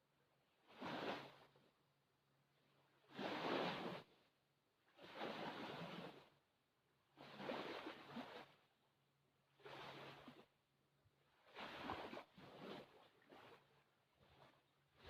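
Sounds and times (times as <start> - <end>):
small waves lapping on shore: 0.5 - 1.7, 2.6 - 4.3, 4.9 - 6.4, 7.1 - 8.8, 9.5 - 10.6, 11.2 - 15.0.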